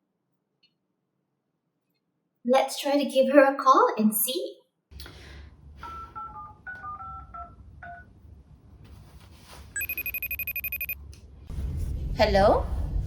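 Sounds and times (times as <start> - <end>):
phone keypad beeps: 9.8 - 11.0
pulsing electronic phone ring: 9.8 - 11.0.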